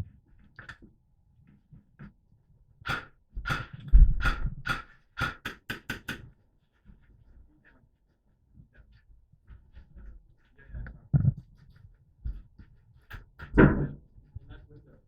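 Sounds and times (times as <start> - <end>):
airsoft rifle shots: 2.9 - 5.7.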